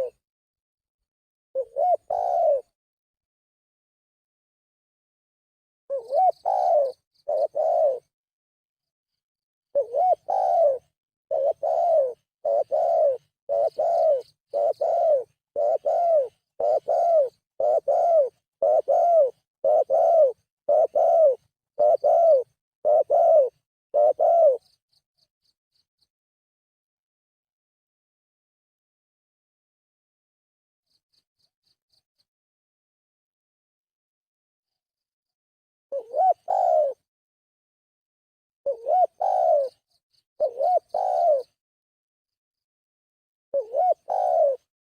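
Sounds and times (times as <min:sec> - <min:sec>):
dove cooing: 0:00.0 - 0:00.2, 0:01.6 - 0:02.8, 0:05.9 - 0:08.1, 0:09.8 - 0:24.8, 0:35.9 - 0:37.1, 0:38.7 - 0:41.6, 0:43.6 - 0:44.7.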